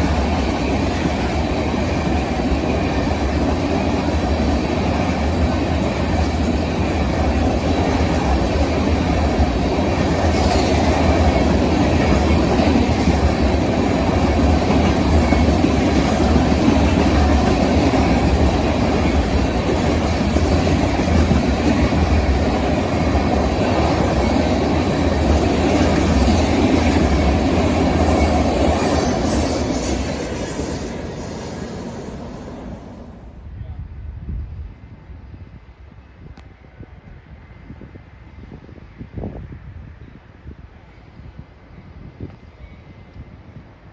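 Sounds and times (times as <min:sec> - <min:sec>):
train rumbling past: 0:00.0 - 0:43.9.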